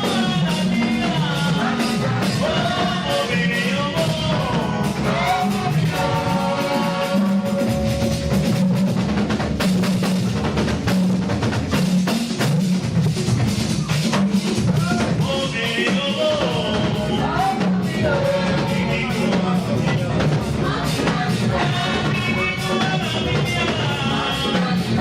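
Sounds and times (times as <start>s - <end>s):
bass line: 0.0s - 25.0s
drum kit beat: 0.0s - 25.0s
higher melodic part: 0.4s - 10.5s.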